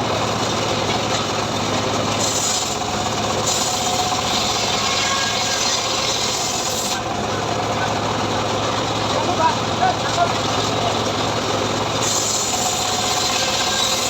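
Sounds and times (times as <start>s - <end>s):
portable sawmill engine humming: 0.0s - 14.0s
saw blade cutting wood: 0.0s - 14.0s.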